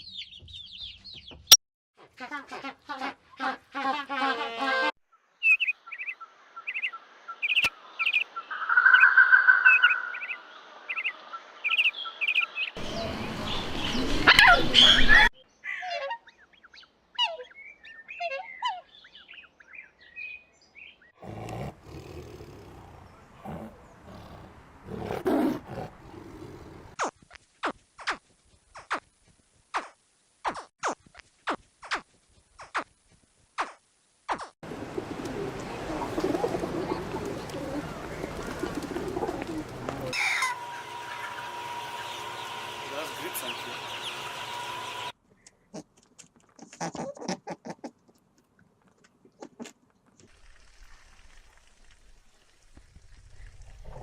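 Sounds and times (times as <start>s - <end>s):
bird chirping: 5.4s - 21.1s, 35.3s - 45.7s.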